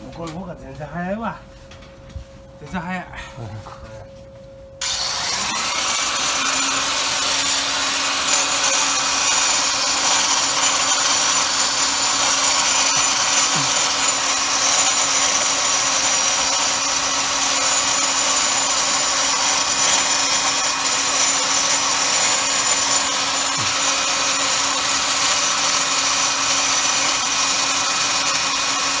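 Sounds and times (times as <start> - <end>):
electric power tool whining: 4.8 - 29.0.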